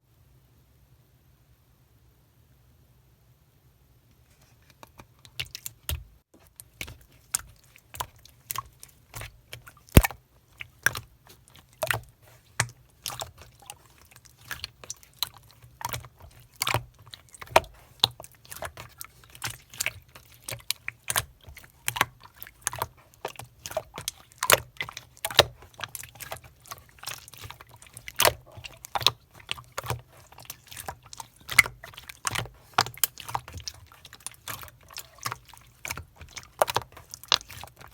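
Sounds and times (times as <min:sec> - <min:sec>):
slime squeezed by hand: 0:10.0 - 0:10.2.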